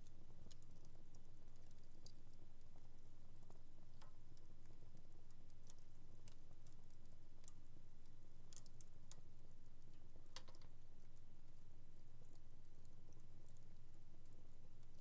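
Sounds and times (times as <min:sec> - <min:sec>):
wood fire crackling: 0:01.5 - 0:11.2.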